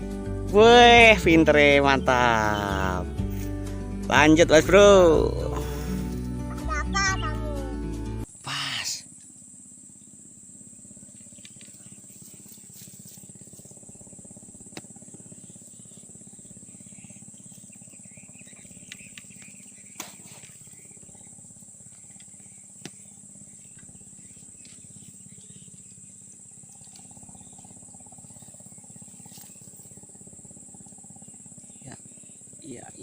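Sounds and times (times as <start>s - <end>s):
insects chirping chorus: 0.0s - 33.0s
low hum: 9.0s - 33.0s.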